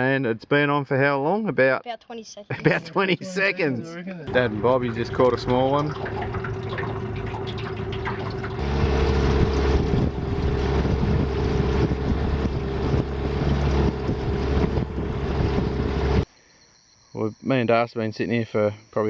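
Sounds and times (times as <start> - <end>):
outboard motor running: 4.3 - 16.2
wind noise: 4.3 - 16.2
water noise: 4.3 - 16.3.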